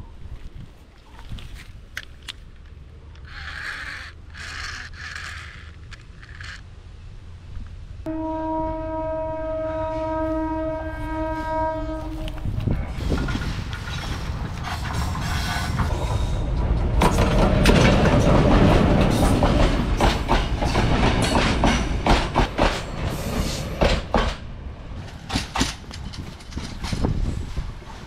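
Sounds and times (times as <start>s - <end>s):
locomotive rumble: 2.4s - 28.0s
train wheels clacking on rail joints: 12.3s - 28.0s.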